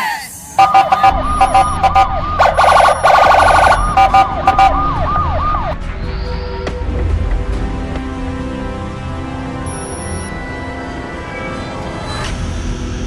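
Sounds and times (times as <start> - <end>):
police siren: 0.6 - 5.8.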